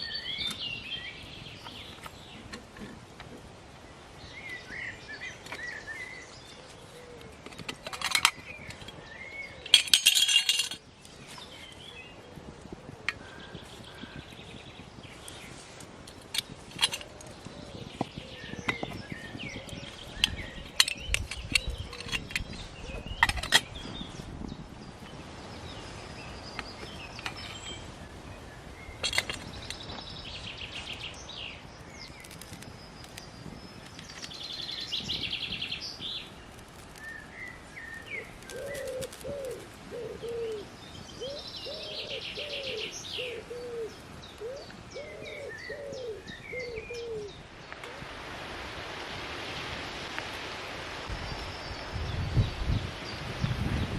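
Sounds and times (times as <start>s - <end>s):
small birds trilling: 3.8s - 48.0s
pigeon cooing: 38.2s - 47.3s.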